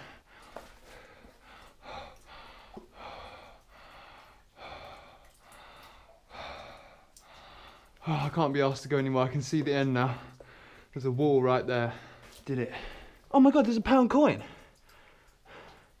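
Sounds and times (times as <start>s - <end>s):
man breathing: 0.0s - 8.4s, 10.1s - 10.9s, 11.9s - 13.3s, 14.4s - 16.0s.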